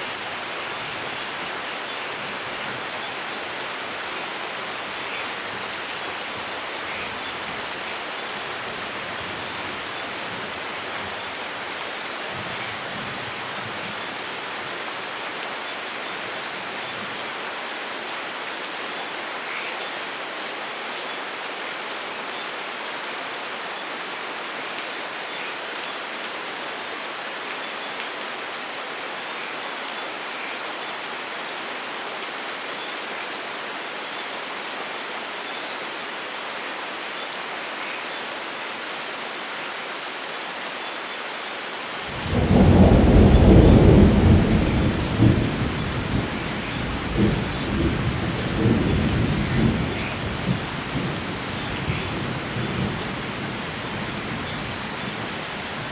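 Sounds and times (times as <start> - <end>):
heavy rain falling: 0.0 - 55.9
thunder rumbling: 42.1 - 55.3.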